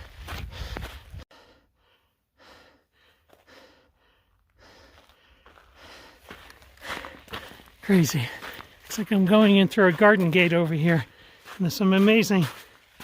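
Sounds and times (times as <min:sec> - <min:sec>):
person breathing hard: 0:00.1 - 0:08.9, 0:11.0 - 0:11.6.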